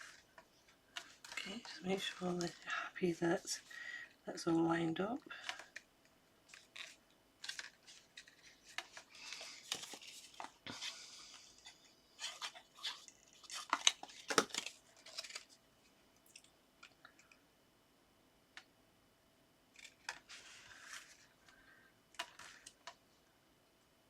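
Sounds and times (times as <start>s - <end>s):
paper rustling and sliding: 6.5s - 15.5s, 19.8s - 21.4s.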